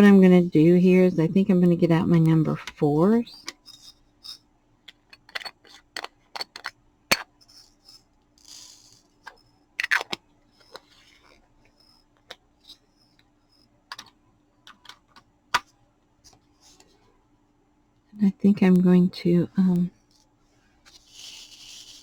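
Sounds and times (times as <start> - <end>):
faint steady hum: 0.0 - 22.0
plastic pieces clicking and tapping: 4.8 - 7.3, 13.9 - 15.7.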